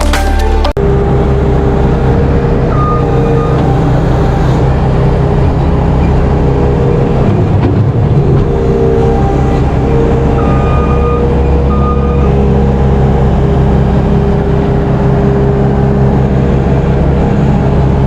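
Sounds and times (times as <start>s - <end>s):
music: 0.0s - 0.8s
tractor diesel engine running: 0.0s - 18.0s.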